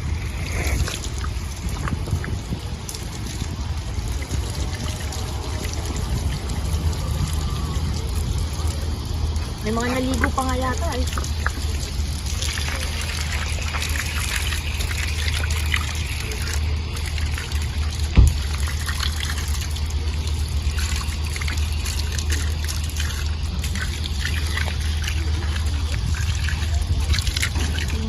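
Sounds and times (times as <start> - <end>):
low rumble: 0.0 - 28.0
water trickling and splashing: 0.0 - 28.0
sharp thump: 18.2 - 18.4.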